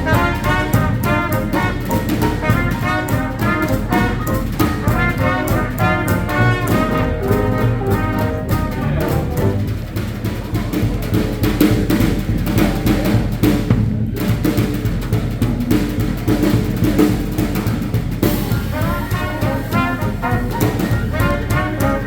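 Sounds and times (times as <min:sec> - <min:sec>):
horns: 0:00.0 - 0:13.8, 0:16.2 - 0:22.0
walking bass: 0:00.0 - 0:14.2
drum kit: 0:00.0 - 0:22.0.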